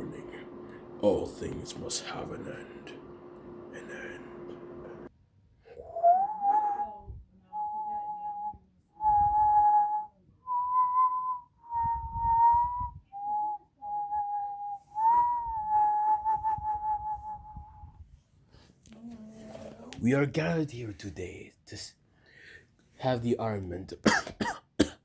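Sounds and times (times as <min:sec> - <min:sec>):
person whistling a slow tune: 0:05.8 - 0:18.0.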